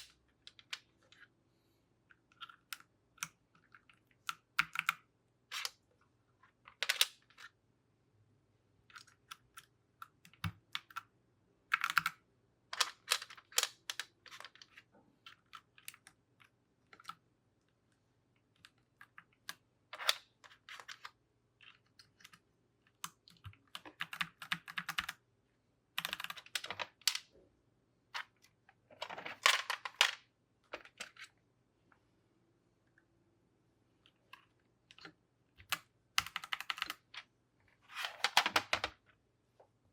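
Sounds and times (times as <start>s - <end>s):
plastic keycaps clicking: 35.6s - 37.1s.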